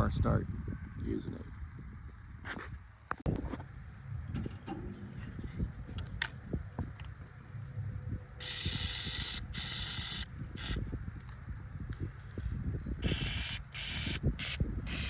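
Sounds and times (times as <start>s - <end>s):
air blow gun hissing: 13.0s - 15.0s.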